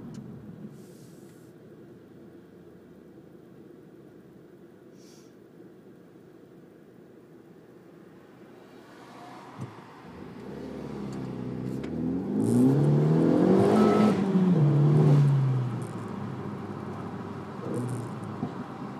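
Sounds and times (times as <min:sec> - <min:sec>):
car engine at full throttle: 0:09.4 - 0:18.9.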